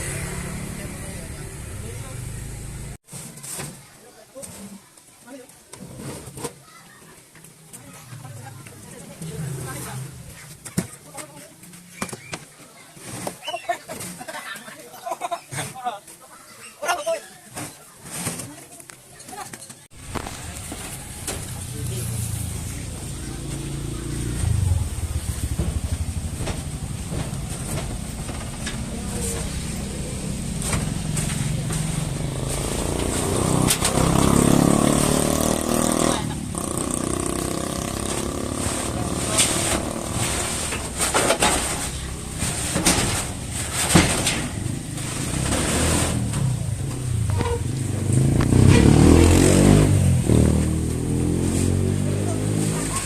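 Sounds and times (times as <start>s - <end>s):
engine running: 0.0s - 3.0s, 20.0s - 51.9s.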